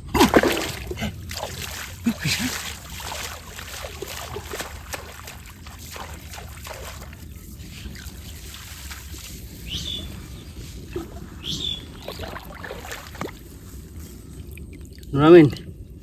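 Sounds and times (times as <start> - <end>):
river water sloshing and trickling: 0.0 - 16.0
small water splashes: 0.0 - 16.0.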